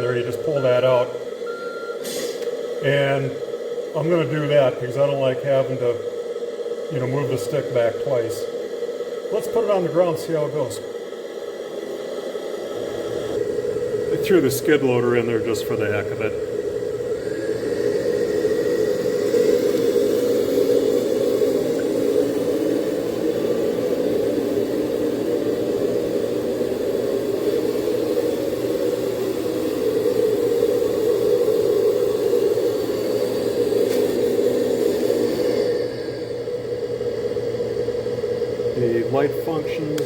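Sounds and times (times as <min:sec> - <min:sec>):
electric motor whirring: 0:11.7 - 0:40.0.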